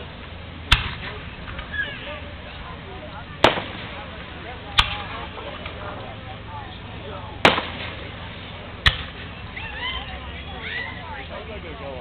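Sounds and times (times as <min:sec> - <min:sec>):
fireworks bursting with loud bangs: 0:03.3 - 0:05.8, 0:07.4 - 0:09.5.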